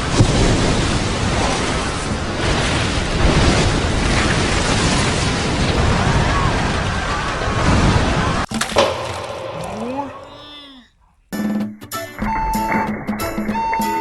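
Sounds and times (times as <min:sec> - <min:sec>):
water surging and splashing: 0:08.5 - 0:10.8.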